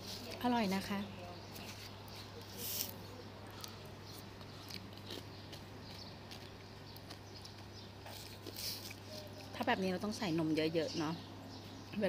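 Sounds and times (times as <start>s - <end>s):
chewing and crunching ice: 1.6s - 9.6s.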